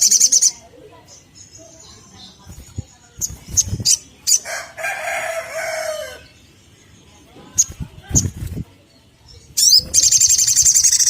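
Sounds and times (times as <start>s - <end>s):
sunbird chirps: 0.0s - 4.7s, 5.3s - 11.0s
rooster crowing: 4.4s - 6.2s.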